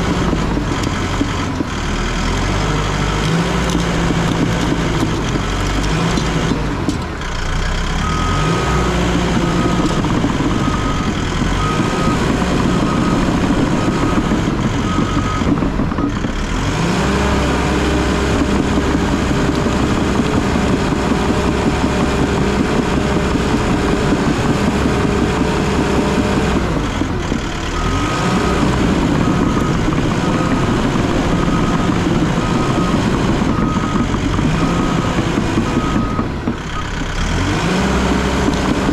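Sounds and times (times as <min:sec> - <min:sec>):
bulldozer diesel engine under load: 0:00.0 - 0:38.9
backup alarm beeping: 0:27.8 - 0:36.9.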